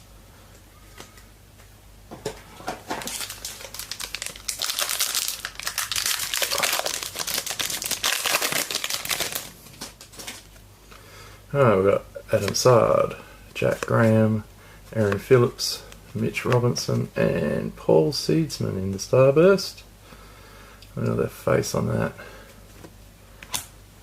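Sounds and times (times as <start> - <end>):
card pack wrapper tearing and crinkling: 3.0 - 10.4.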